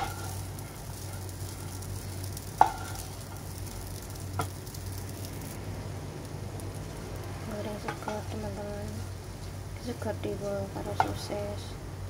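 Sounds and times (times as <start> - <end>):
wooden spatula stirring: 0.0 - 5.6
fried rice sizzling in a wok: 0.0 - 12.0.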